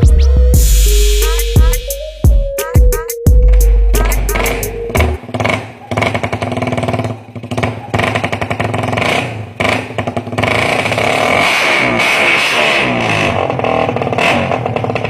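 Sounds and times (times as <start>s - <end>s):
small motorcycle engine revving: 5.1s - 15.0s.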